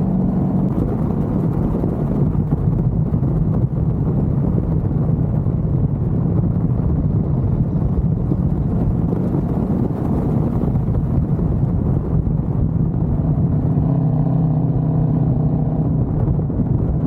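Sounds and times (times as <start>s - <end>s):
car engine low exhaust rumble: 0.0s - 17.0s.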